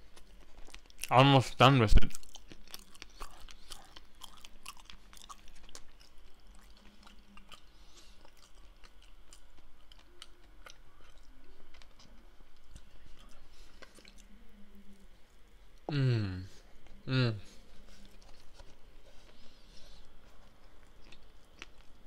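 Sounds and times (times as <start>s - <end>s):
person chewing with mouth clicks: 2.0s - 14.3s, 17.9s - 22.0s.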